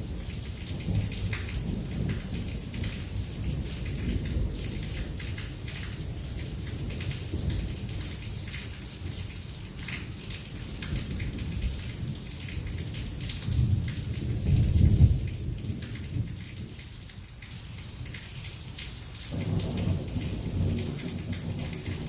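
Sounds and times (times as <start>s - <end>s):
heavy rain falling: 0.0s - 22.0s
rolling thunder: 13.4s - 16.8s, 19.3s - 22.0s.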